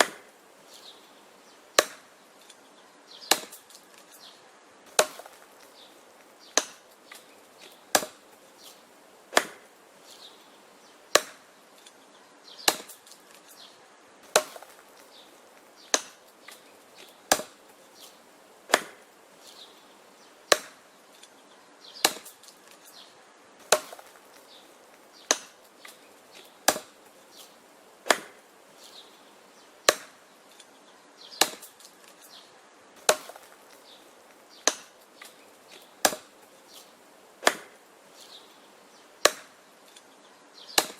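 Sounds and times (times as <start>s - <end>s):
axe chopping wood: 0.0s - 0.3s, 1.7s - 2.2s, 3.2s - 4.1s, 4.9s - 8.4s, 9.3s - 9.7s, 11.1s - 11.5s, 12.6s - 13.5s, 14.2s - 19.1s, 20.5s - 20.9s, 22.0s - 23.0s, 23.6s - 28.4s, 29.8s - 30.6s, 31.3s - 32.2s, 33.0s - 34.0s, 34.6s - 37.8s, 39.2s - 40.0s, 40.7s - 40.9s.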